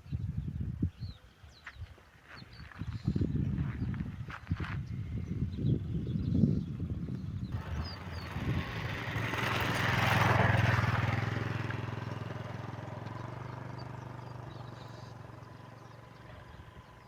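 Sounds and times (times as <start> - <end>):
vehicle engine passing by: 7.5 - 17.0.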